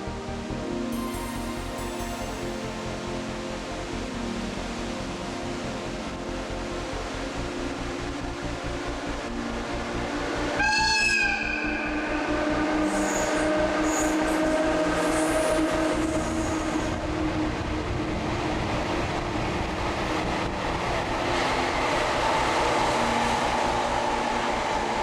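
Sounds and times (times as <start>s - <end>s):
train rumbling on rails: 1.0s - 3.2s, 10.2s - 25.0s.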